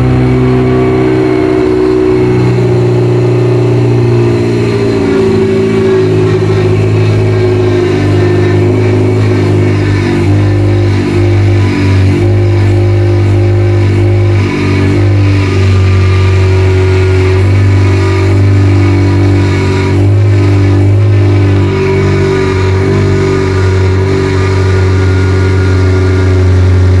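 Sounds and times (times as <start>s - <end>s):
rally car engine running: 0.0s - 27.0s.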